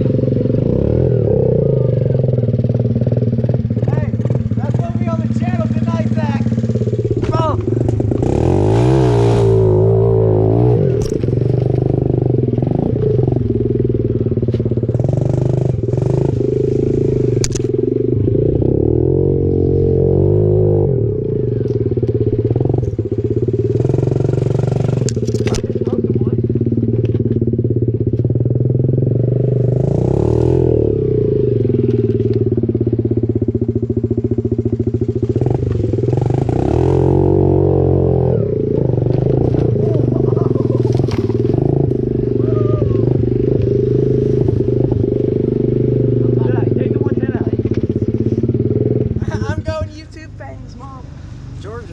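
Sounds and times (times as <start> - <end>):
pit bike engine revving: 0.0 - 50.4
sharp clicks and knocks: 25.0 - 26.0.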